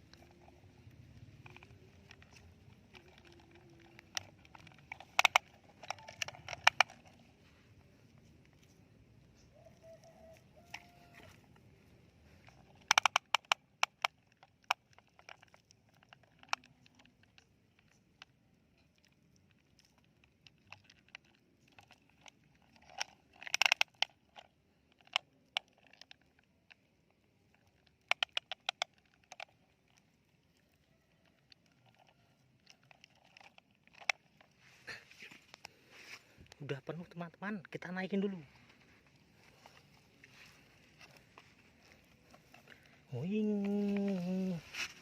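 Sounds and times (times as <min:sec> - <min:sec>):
toy bulldozer clicking in sand: 0:00.0 - 0:07.4, 0:12.4 - 0:30.1.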